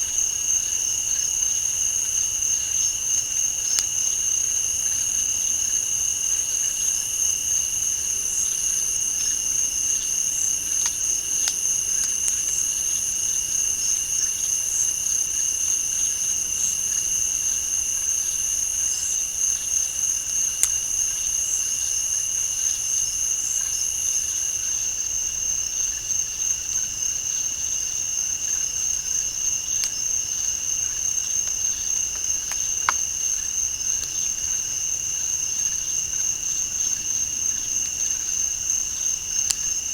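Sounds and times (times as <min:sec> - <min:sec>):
crickets and insects trilling: 0:00.0 - 0:39.9
higher insect chorus: 0:00.0 - 0:39.9
faint sharp clicks: 0:03.7 - 0:03.9, 0:10.7 - 0:12.4, 0:20.6 - 0:20.8, 0:39.4 - 0:39.7.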